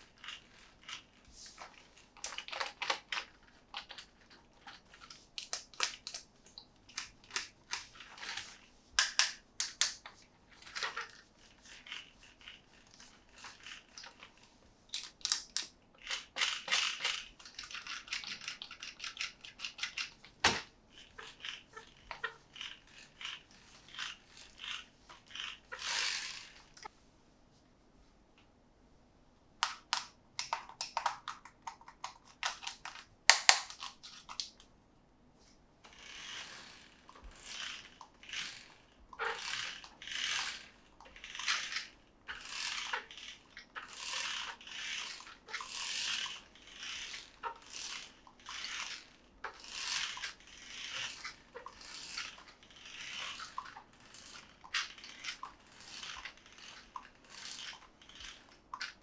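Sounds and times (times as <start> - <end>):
packaging clicks and taps: 5.4 - 7.9, 9.0 - 10.1, 29.6 - 34.5.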